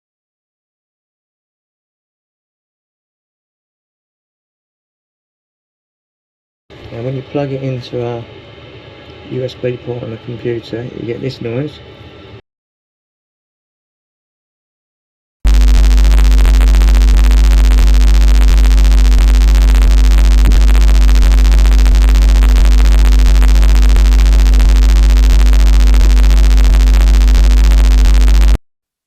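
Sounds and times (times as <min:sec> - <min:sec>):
electrical hum and buzz: 0:06.7 - 0:12.4, 0:15.5 - 0:28.6.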